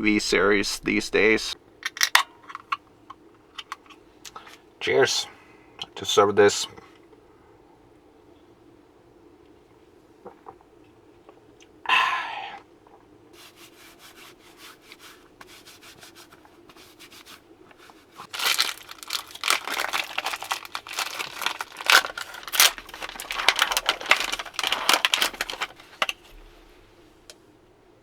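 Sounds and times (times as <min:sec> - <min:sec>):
crinkling handling noises: 0:01.8 - 0:04.7, 0:13.4 - 0:27.4.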